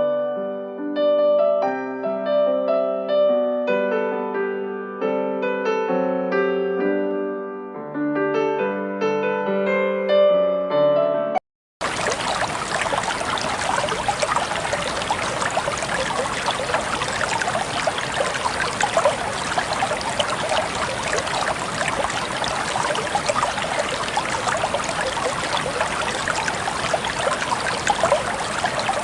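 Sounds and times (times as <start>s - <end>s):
water trickling down small waterfall: 11.8s - 29.0s.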